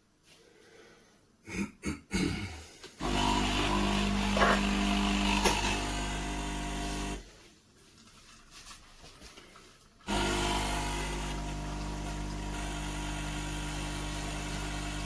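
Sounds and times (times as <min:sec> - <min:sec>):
espresso machine pump buzzing: 0:03.0 - 0:07.2, 0:10.1 - 0:15.0.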